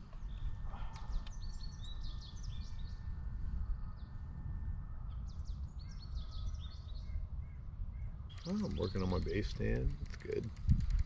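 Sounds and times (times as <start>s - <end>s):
small birds chirping: 0.0s - 3.1s, 5.1s - 10.8s.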